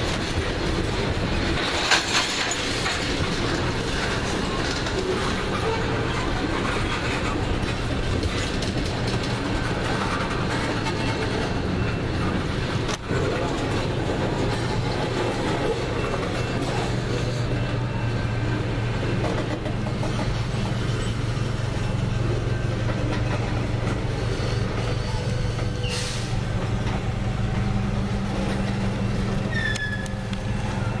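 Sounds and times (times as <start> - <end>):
freight train rumbling: 0.0 - 31.0
short high squeal: 24.9 - 26.4, 29.5 - 30.3.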